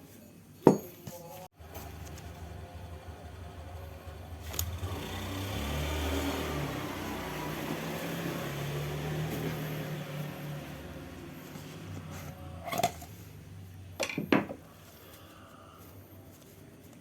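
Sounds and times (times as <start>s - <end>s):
vehicle engine running: 1.6s - 13.5s.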